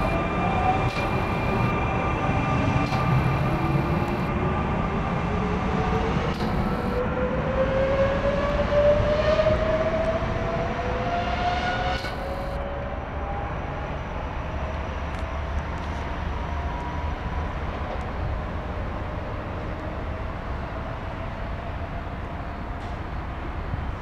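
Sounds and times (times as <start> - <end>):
train motor whine rising: 0.0 - 4.6, 5.3 - 7.2, 10.0 - 12.8
train running rumble: 0.0 - 7.2.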